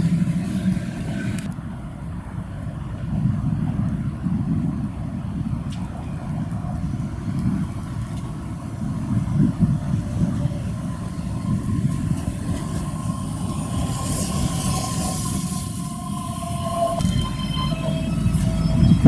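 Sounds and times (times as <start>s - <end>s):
train wheels rumbling on rails: 0.0s - 19.0s
train hiss: 8.9s - 19.0s
steady high tone: 10.1s - 19.0s.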